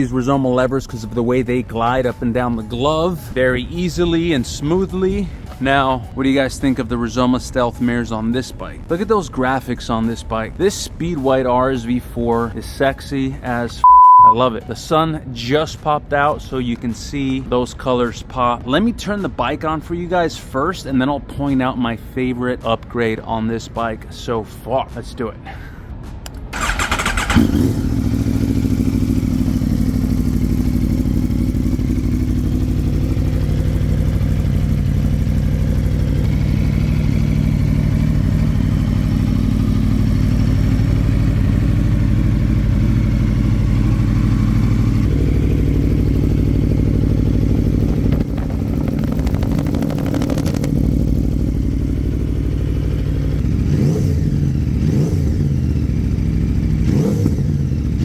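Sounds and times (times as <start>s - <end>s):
motorcycle engine idling and revving: 0.0s - 8.0s, 26.1s - 58.0s.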